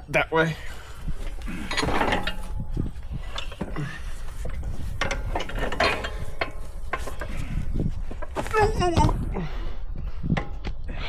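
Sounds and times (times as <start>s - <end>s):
metal truck parts clanking: 0.0s - 9.2s.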